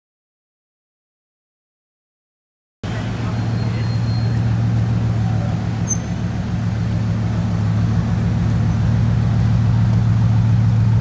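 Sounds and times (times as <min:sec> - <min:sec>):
car engine idling: 0:02.8 - 0:11.0.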